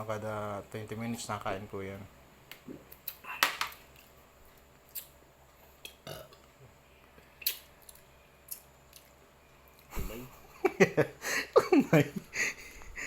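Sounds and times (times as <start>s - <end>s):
chewing smacks and clicks: 4.9s - 5.2s, 7.4s - 9.9s.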